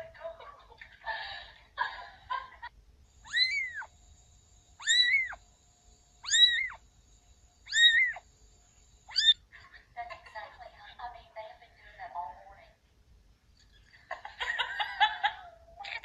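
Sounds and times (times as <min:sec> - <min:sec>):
cat meowing: 0:03.2 - 0:03.9, 0:04.8 - 0:05.4, 0:06.2 - 0:06.8, 0:07.7 - 0:08.2, 0:09.1 - 0:09.4.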